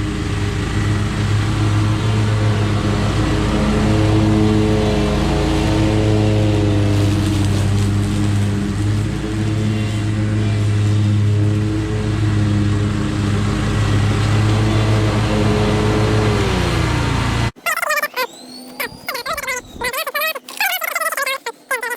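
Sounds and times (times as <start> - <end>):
lawn mower engine running: 0.0 - 20.9
high squeaky chirps: 17.6 - 21.9.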